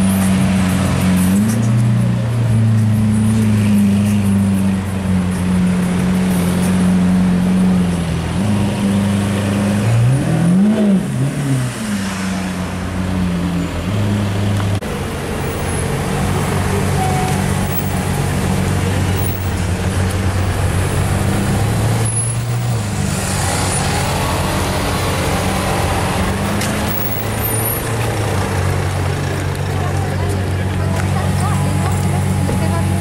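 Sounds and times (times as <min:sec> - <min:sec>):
car engine idling: 0:14.5 - 0:33.0.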